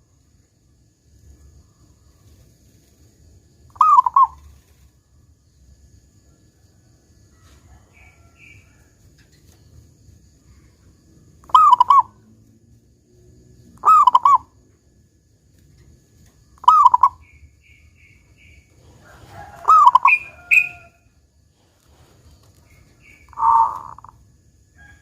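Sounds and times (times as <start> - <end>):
high bird chirps: 3.7 - 4.4, 11.4 - 12.2, 13.8 - 14.5, 16.6 - 18.7, 19.6 - 20.9, 22.7 - 24.2
dove cooing: 3.7 - 4.6, 11.4 - 12.3, 13.7 - 14.6, 16.6 - 17.4, 18.4 - 20.9, 22.8 - 24.2.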